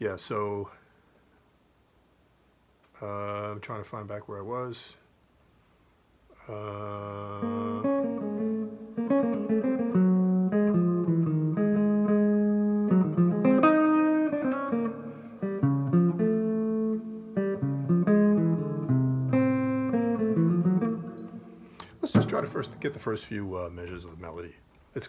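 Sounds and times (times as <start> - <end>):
jazz guitar chords and melody: 7.2 - 23.9.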